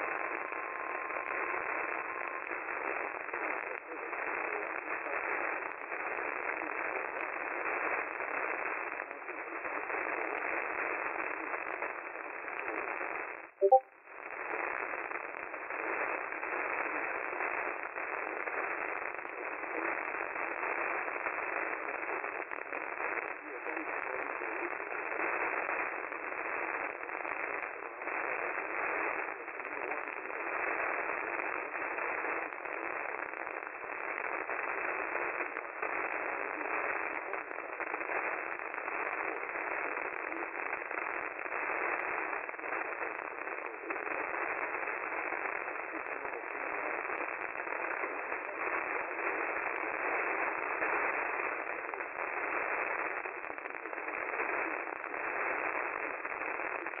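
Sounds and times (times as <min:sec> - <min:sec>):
crackles and pops: 0:00.0 - 0:57.0
radio static hiss: 0:00.0 - 0:57.0.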